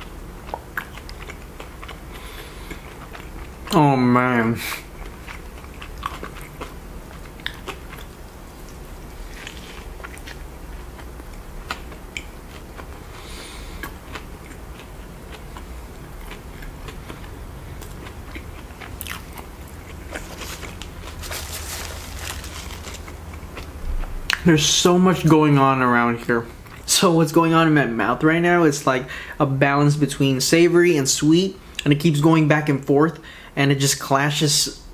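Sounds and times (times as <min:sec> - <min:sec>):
person chewing burger: 0:00.0 - 0:03.7, 0:04.7 - 0:24.4.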